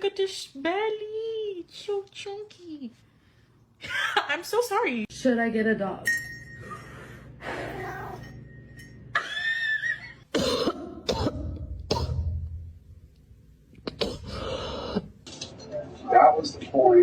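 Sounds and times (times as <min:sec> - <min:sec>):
person coughing: 0:10.3 - 0:12.4, 0:13.8 - 0:15.1.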